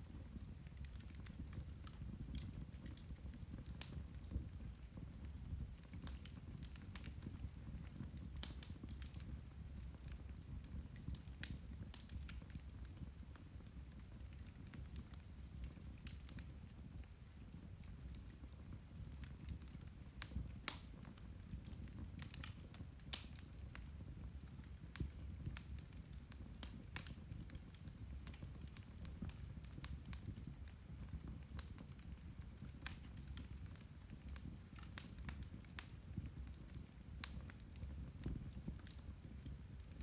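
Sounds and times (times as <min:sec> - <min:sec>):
fire crackling and popping: 0:00.0 - 0:40.0
low rumble of flames: 0:00.0 - 0:40.0.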